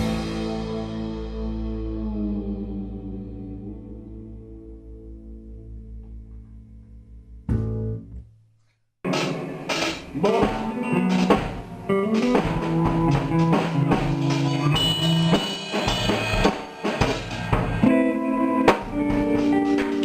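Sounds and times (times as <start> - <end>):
drum kit beat: 0.0 - 2.0, 9.1 - 20.0
electric guitar: 0.0 - 8.0, 9.1 - 20.0
bass guitar line: 0.0 - 8.3, 10.1 - 16.4, 17.0 - 20.0.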